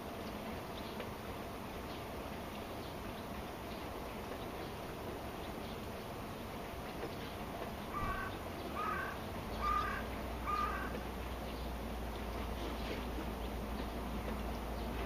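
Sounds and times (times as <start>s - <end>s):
steady rain: 0.0s - 15.0s
bird short calls: 7.9s - 10.9s.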